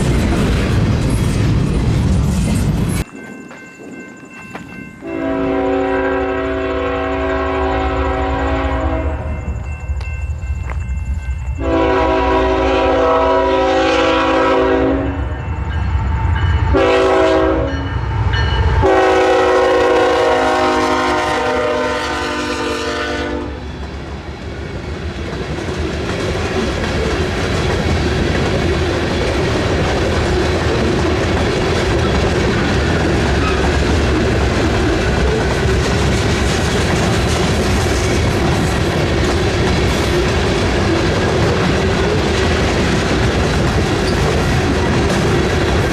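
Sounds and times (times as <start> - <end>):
train rumbling past: 0.0 - 45.9
locomotive horn blasts: 5.0 - 9.4, 11.6 - 15.3, 16.7 - 17.9, 18.8 - 23.6
wheel clatter on rails: 25.3 - 45.9.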